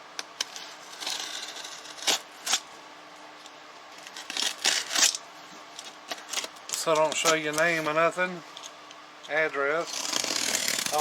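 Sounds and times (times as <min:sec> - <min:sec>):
cardboard box scraping and ripping: 0:09.9 - 0:11.0.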